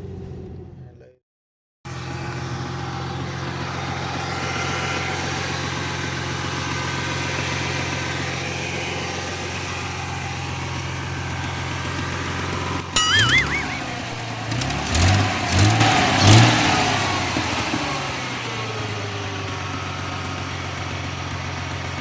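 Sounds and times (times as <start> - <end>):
car engine idling: 1.9 - 12.9, 17.0 - 22.0.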